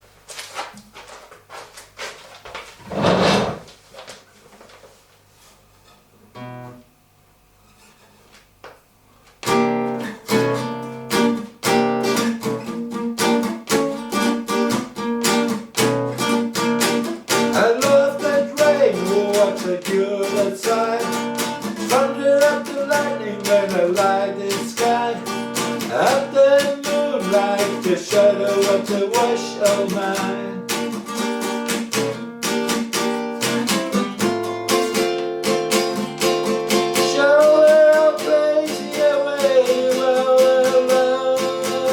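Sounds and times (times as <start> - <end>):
acoustic guitar strumming and picking: 5.8 - 6.9, 9.4 - 41.9.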